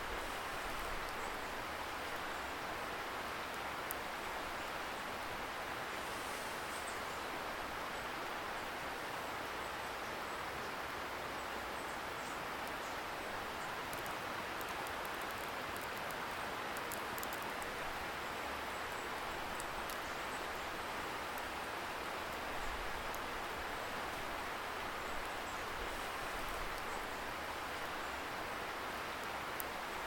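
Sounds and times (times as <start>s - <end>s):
distant river hissing: 4.1s - 8.9s
wood fire crackling: 13.8s - 17.9s.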